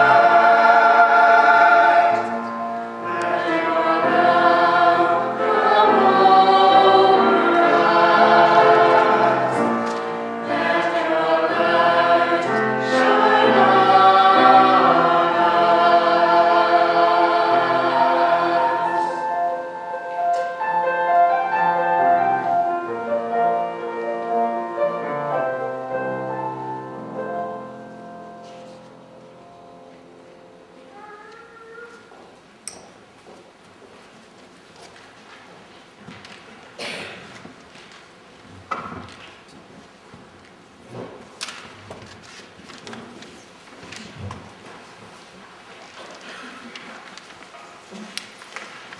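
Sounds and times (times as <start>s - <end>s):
choir singing sustained notes: 0.0s - 20.1s.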